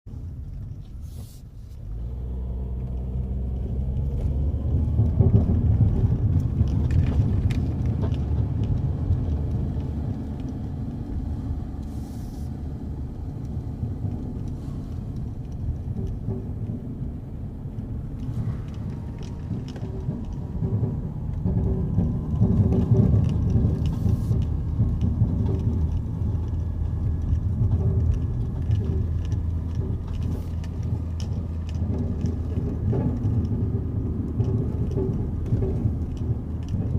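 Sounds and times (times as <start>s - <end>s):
car road and engine rumble: 0.0s - 36.9s
low rattle in car: 0.1s - 36.9s.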